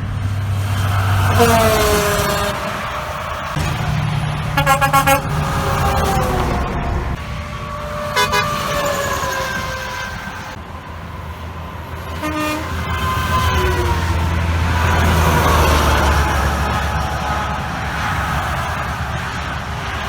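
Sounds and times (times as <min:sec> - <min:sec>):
truck engine rumble: 0:00.0 - 0:20.0
truck air horns: 0:01.2 - 0:03.7, 0:04.4 - 0:10.5, 0:12.1 - 0:14.3.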